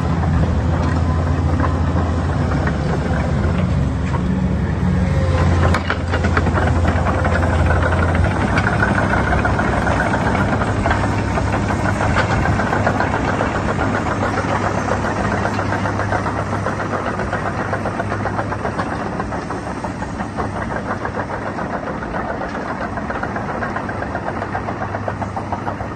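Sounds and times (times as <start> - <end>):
diesel engine running: 0.0 - 25.9
fast clatter: 5.4 - 25.9.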